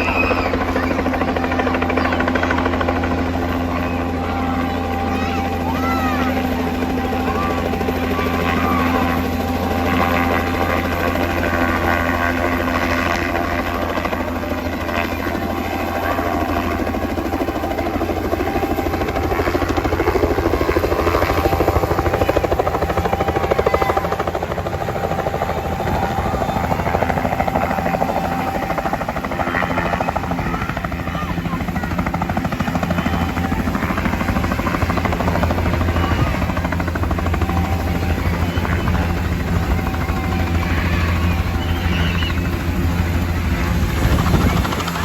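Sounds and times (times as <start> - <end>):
helicopter rotor chop: 0.0 - 45.0
low engine drone: 0.0 - 45.0.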